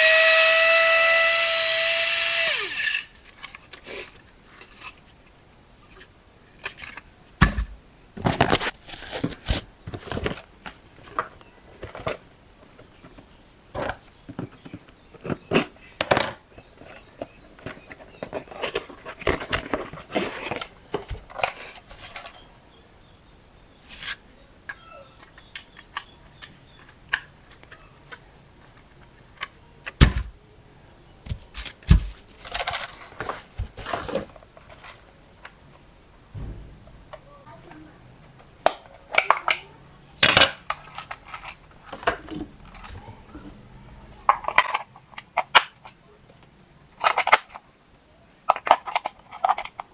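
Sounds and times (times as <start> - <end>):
plastic toy parts clicking: 24.7 - 30.2, 38.6 - 42.1, 44.3 - 46.0, 47.0 - 47.6, 48.5 - 49.9
knocks: 36.3 - 37.0.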